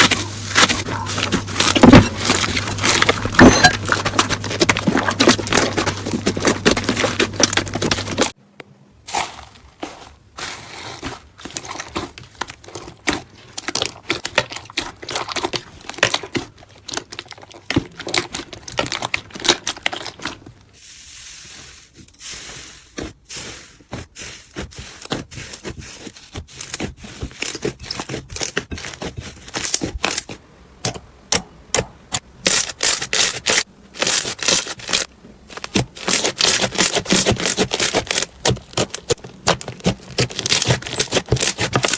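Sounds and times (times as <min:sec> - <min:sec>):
slime squeezing with crackling pops: 0:32.4 - 0:41.9.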